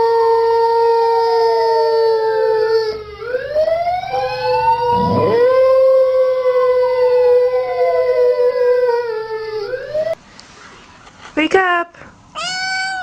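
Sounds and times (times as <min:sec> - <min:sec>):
dog howling: 0:04.6 - 0:09.7.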